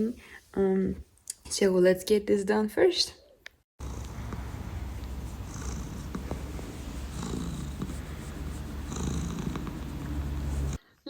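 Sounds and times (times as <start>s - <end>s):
cat purring: 3.8s - 10.8s.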